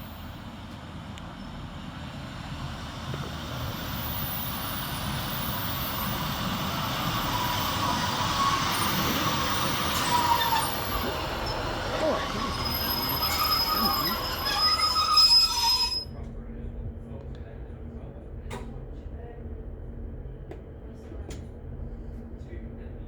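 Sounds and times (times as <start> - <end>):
diesel train approaching: 0.0 - 16.1
train brake squeal: 4.3 - 16.1.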